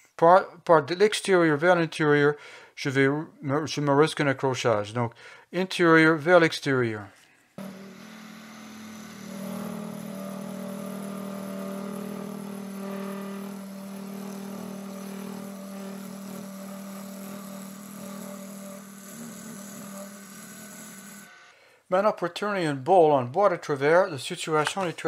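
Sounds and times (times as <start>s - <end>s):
gouge cutting spinning wood: 7.6s - 21.5s
lathe motor hum: 7.6s - 21.5s.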